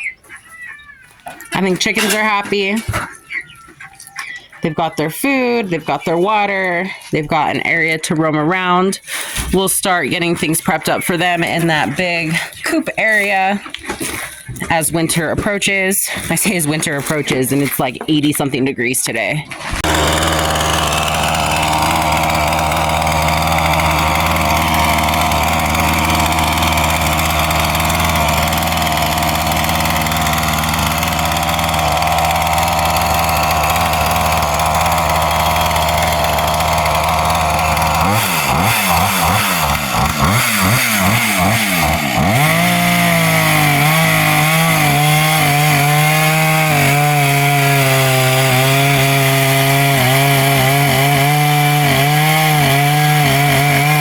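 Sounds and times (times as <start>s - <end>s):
chainsaw engine revving: 19.6s - 54.0s.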